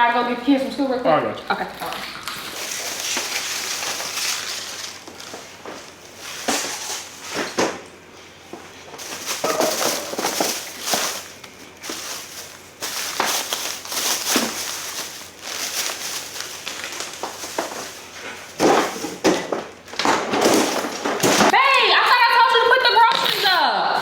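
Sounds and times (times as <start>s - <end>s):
plastic bags rustling: 0.2s - 24.0s
items set down knocking: 4.8s - 7.9s, 8.6s - 12.1s, 17.2s - 21.6s.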